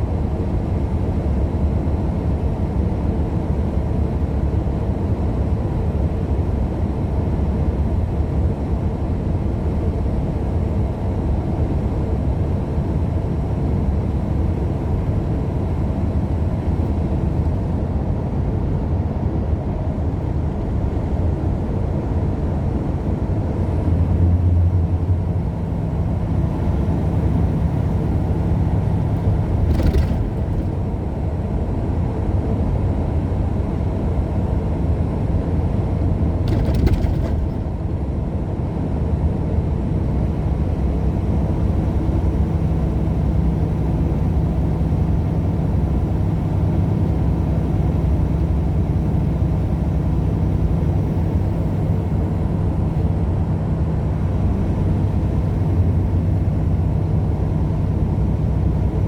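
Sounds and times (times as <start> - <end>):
truck engine and tyres droning: 0.0 - 59.0
brief clicks or rattles: 29.6 - 30.7, 36.5 - 37.6.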